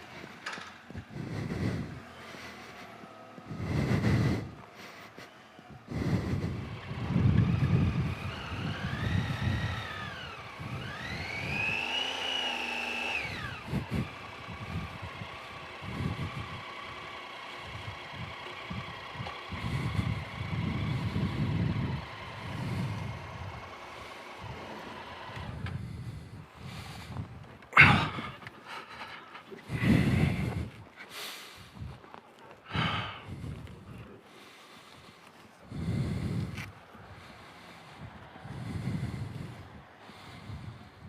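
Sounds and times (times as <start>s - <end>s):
wind buffeting microphone: 0.0s - 12.0s, 13.2s - 32.1s, 32.7s - 41.0s
motorcycle engine revving: 0.0s - 28.7s, 35.6s - 41.0s.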